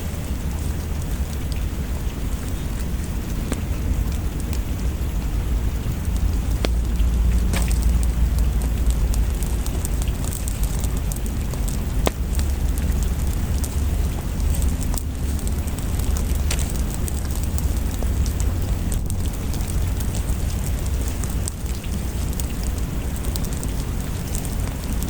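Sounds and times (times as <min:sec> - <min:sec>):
fireplace crackling: 0:00.0 - 0:25.0
rain hissing: 0:00.0 - 0:25.0
sharp pops from fire: 0:05.8 - 0:25.0.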